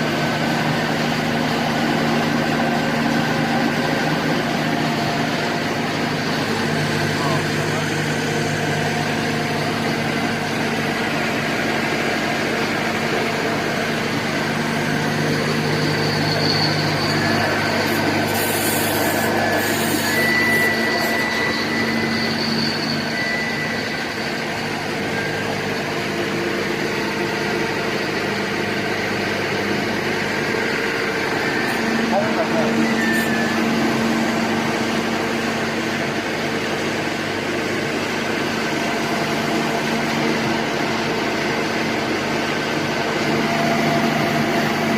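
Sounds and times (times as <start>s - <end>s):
drilling rig engine droning: 0.0s - 44.9s
brief high hiss: 17.8s - 21.2s.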